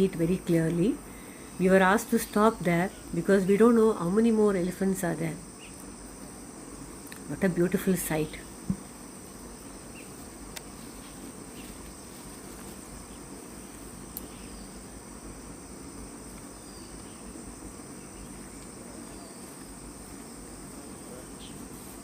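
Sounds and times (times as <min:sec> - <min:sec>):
insect chorus drone: 0:00.0 - 0:22.0
faint clicks: 0:14.1 - 0:14.4.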